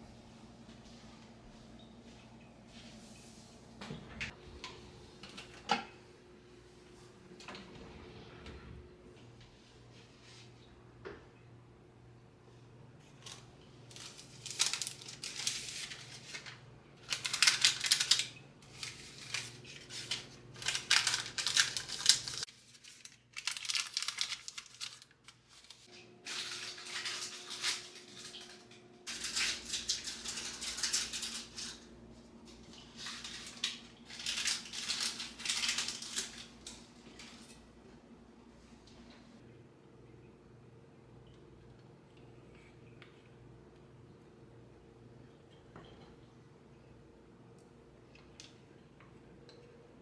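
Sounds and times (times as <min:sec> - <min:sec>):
crinkling and rustling: 0:13.0 - 0:38.0.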